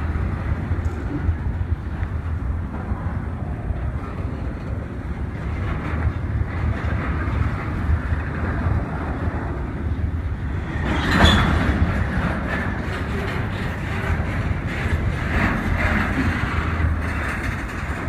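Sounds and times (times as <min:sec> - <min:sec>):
train rumbling on rails: 0:00.0 - 0:18.0.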